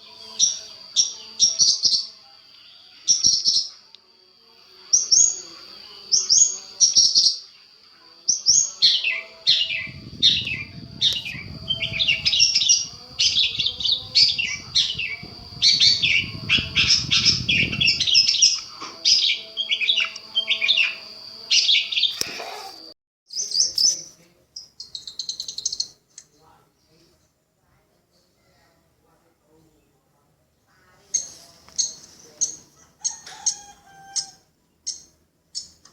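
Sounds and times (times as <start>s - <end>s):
shrike song chirps: 8.3s - 24.0s
steady high whine: 9.4s - 21.4s.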